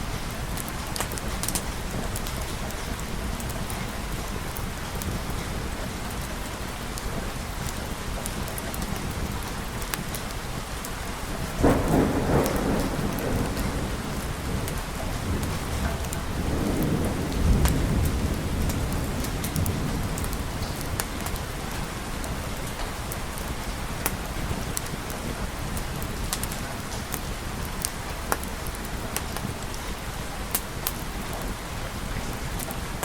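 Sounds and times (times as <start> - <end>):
steady rain: 0.0 - 33.0
thunderclap rumbling: 11.2 - 29.7.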